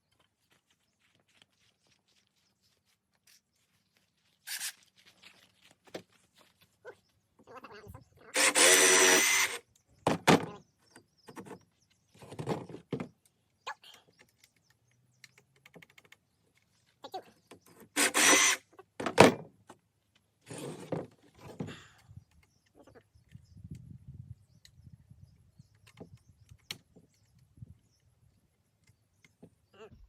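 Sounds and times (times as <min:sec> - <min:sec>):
jigsaw cutting wood: 0:08.3 - 0:09.6, 0:17.9 - 0:18.6.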